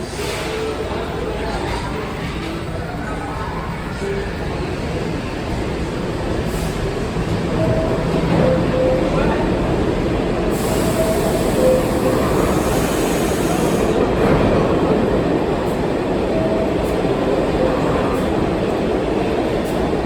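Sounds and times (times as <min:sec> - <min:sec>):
subway train rumble: 0:00.0 - 0:20.0.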